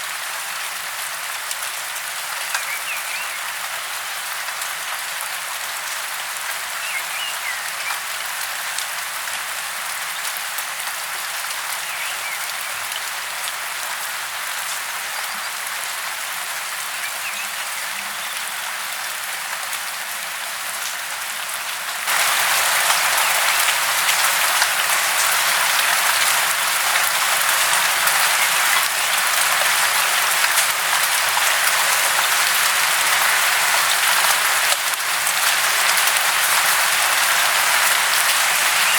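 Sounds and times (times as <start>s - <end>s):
falling water hissing: 22.1s - 38.9s.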